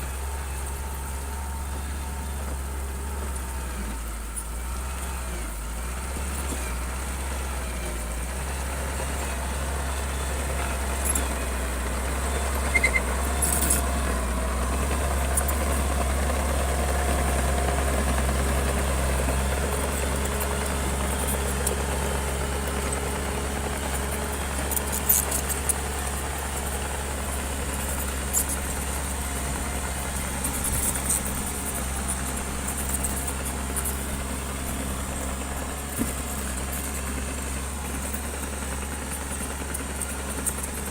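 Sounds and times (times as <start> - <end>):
bulldozer engine droning: 0.0 - 40.9.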